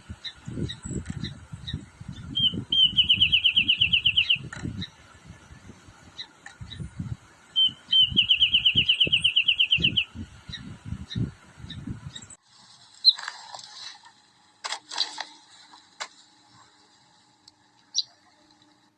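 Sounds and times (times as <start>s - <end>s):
bird song rapid bright notes: 0.2s - 12.2s
faint bird chips: 12.9s - 14.0s.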